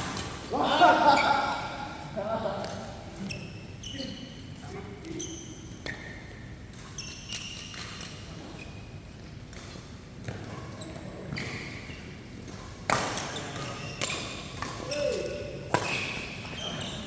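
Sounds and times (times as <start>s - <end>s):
shoes squeaking on court floor: 0.0s - 17.0s
rackets hitting shuttlecock: 12.4s - 16.5s.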